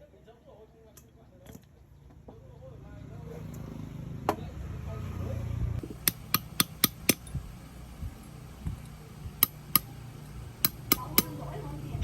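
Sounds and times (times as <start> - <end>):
hammer striking metal: 5.9 - 7.3, 10.6 - 11.4.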